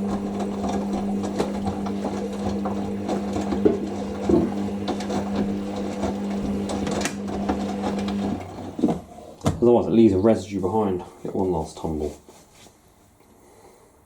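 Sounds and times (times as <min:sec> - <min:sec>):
washing machine humming: 0:00.0 - 0:09.7.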